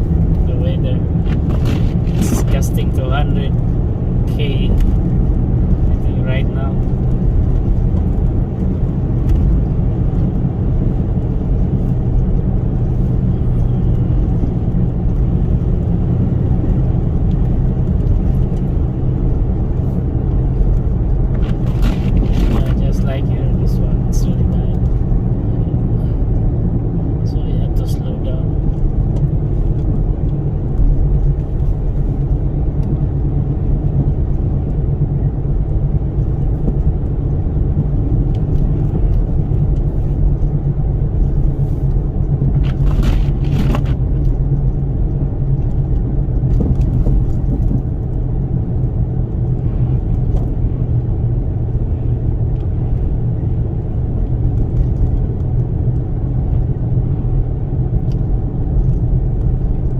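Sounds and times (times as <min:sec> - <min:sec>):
road noise: 0:00.0 - 0:59.9
vehicle engine rumble: 0:00.0 - 0:59.9
wind noise: 0:28.5 - 0:55.9.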